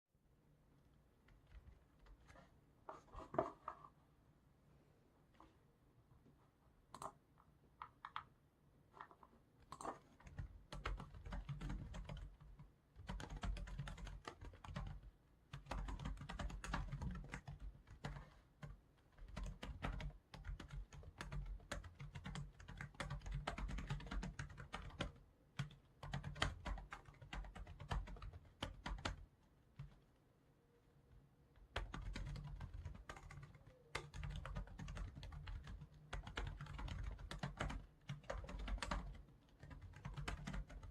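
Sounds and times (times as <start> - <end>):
typing on computer keyboard: 9.6 - 29.2, 31.6 - 40.9.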